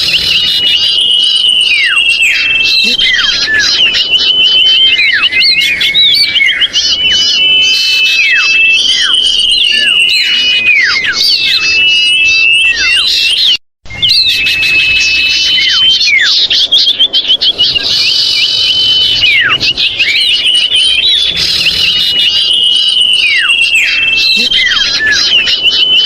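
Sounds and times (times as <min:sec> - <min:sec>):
quick bird chattering: 0:00.0 - 0:01.4, 0:16.4 - 0:22.8, 0:23.5 - 0:26.0
birds calling: 0:00.0 - 0:26.0
long steady bird whistles: 0:00.0 - 0:26.0.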